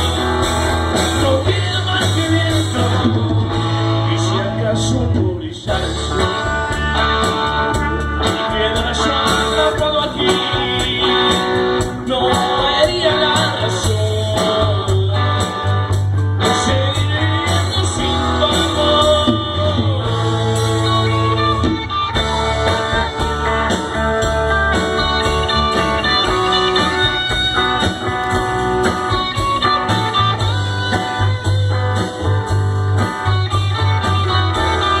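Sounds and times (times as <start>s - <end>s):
electric guitar line: 0.0s - 35.0s
live band playing slow rock: 0.0s - 35.0s.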